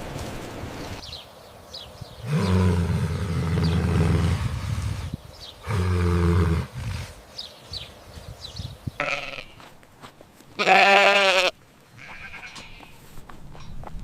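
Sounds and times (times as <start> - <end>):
large animal low calls: 2.2 - 7.2.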